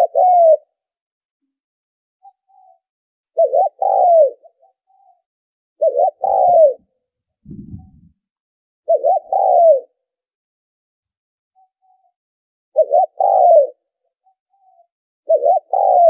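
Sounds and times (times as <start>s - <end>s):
dove cooing: 0.0s - 0.7s, 3.4s - 4.7s, 5.8s - 6.9s, 8.9s - 10.0s, 12.8s - 13.8s, 15.3s - 16.0s
faint low rumble: 7.5s - 8.2s.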